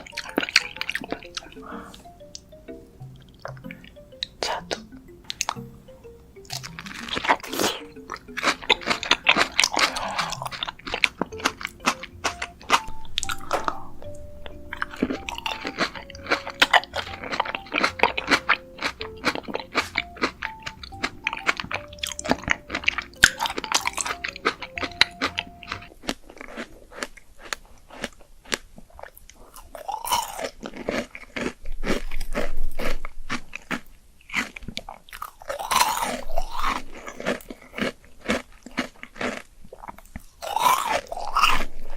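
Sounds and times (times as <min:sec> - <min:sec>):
crunching and chewing fruit: 0:00.0 - 0:02.0, 0:06.5 - 0:41.9
soft background melody: 0:00.0 - 0:26.2.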